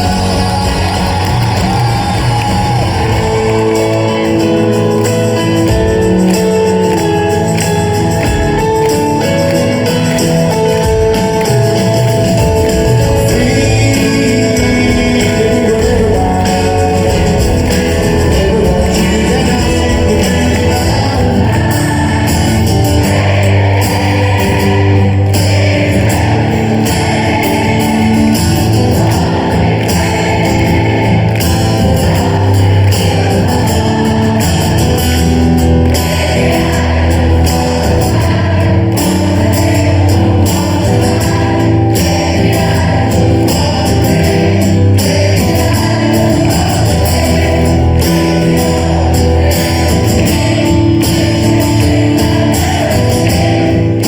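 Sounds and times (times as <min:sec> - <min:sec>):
person singing: 0:00.0 - 0:54.0
rock band playing: 0:00.0 - 0:54.0.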